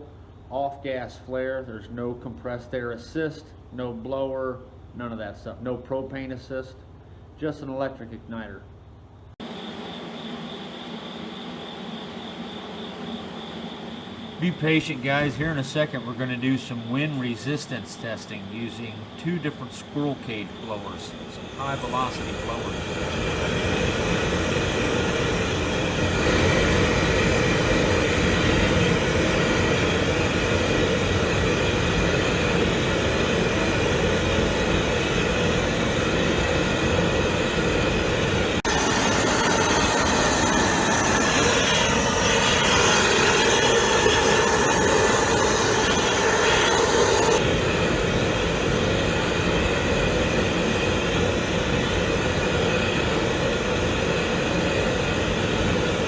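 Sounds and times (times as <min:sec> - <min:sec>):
hissing with faint whistling tones: 0:09.7 - 0:28.4, 0:38.7 - 0:47.4
flare burner flame rushing: 0:38.6 - 0:52.4.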